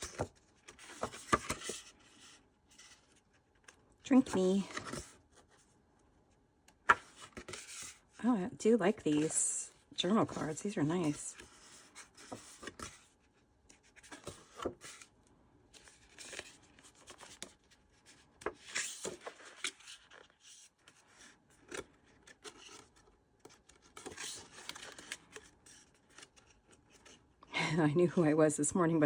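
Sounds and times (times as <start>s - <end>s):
cards being shuffled: 0.0s - 2.2s.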